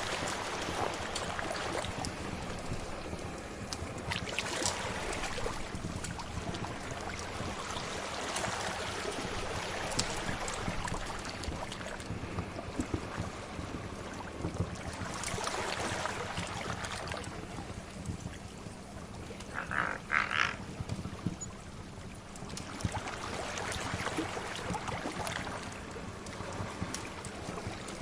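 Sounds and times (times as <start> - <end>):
sea waves washing: 0.0 - 14.2, 18.7 - 20.8.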